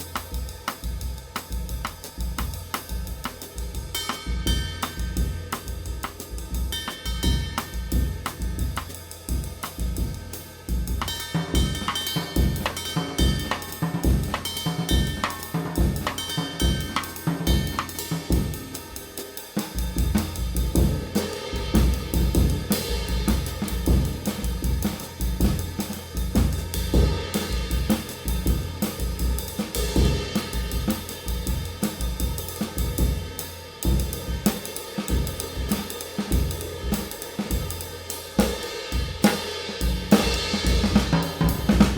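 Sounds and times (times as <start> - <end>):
drum kit groove: 0.0 - 41.9
ride cymbal: 0.0 - 41.9.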